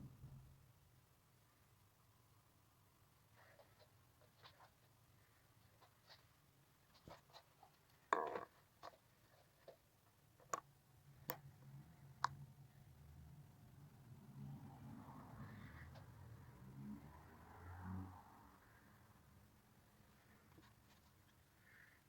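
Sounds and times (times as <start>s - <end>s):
faint clicks and taps: 3.3s - 12.5s.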